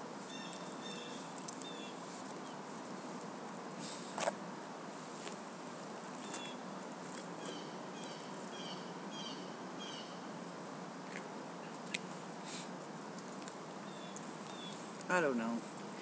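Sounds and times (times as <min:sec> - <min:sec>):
background hiss: 0:00.0 - 0:16.0
small bird chirps: 0:00.3 - 0:02.6, 0:06.2 - 0:06.6, 0:07.4 - 0:10.2, 0:13.8 - 0:14.9.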